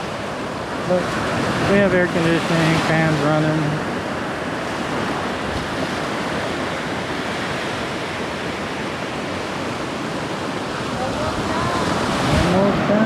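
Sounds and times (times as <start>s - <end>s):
ocean surf waves: 0.0s - 13.0s.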